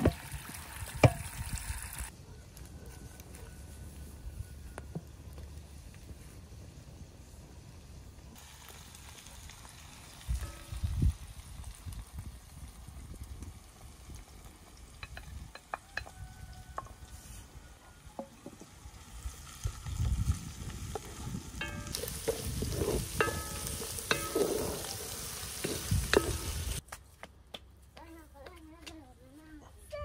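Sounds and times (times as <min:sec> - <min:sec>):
food frying in a metal pot: 0:00.0 - 0:02.1, 0:08.3 - 0:16.8, 0:18.2 - 0:26.8
loud sizzle: 0:00.0 - 0:02.1, 0:05.6 - 0:15.6, 0:18.6 - 0:26.8
utensil clanking in a pot: 0:21.6 - 0:26.6.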